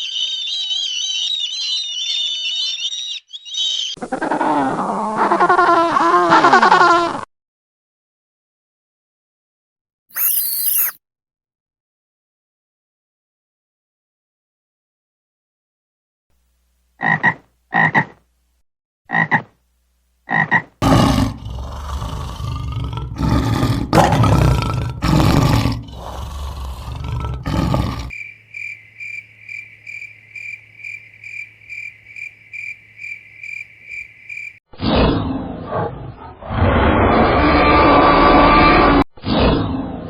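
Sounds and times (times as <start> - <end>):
pulsing chirp: 0.0 - 4.0, 10.1 - 11.0
animal croaks: 17.0 - 18.2, 19.1 - 19.5, 20.3 - 34.5
animal roaring calls: 20.8 - 28.2, 35.4 - 39.0.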